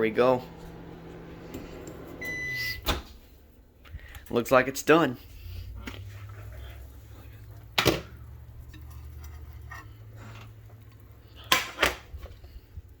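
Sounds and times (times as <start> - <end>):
microwave low hum: 0.0 - 3.8.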